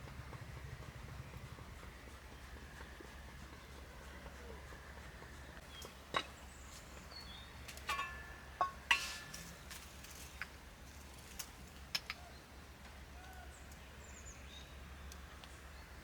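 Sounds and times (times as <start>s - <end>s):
short metallic ring: 7.9s - 9.5s.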